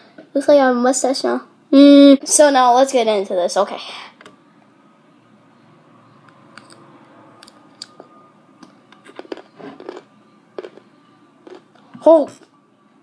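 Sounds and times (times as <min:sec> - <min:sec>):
wet crunching of pickle chewing: 0:09.1 - 0:10.8, 0:11.4 - 0:11.7.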